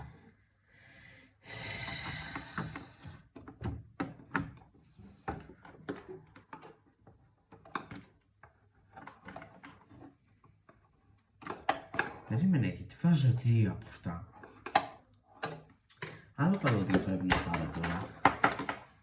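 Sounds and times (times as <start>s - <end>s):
computer parts clicking and knocking: 14.5s - 19.0s.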